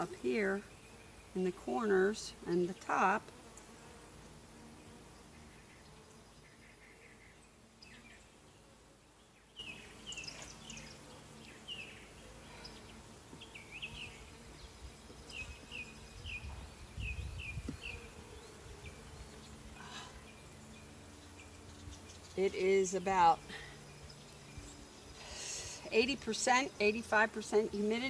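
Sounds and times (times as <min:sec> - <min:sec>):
honeybees buzzing: 0:00.0 - 0:28.0
bird chirps: 0:09.6 - 0:22.6.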